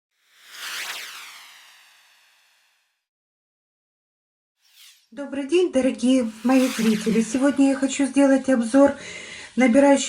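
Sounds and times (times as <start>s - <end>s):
bright shimmering whoosh: 4.6s - 5.2s, 5.9s - 8.0s.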